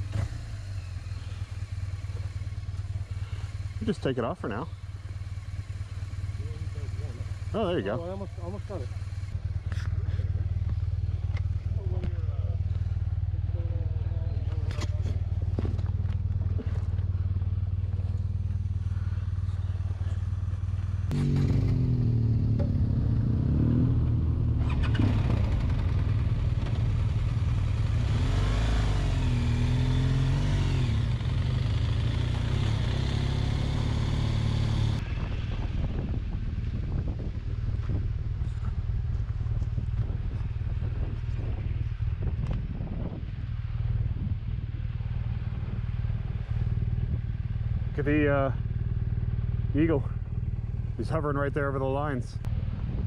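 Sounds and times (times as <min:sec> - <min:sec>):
motorcycle engine: 0:00.0 - 0:53.0
wind rushing over microphone: 0:35.0 - 0:48.0, 0:52.4 - 0:53.0.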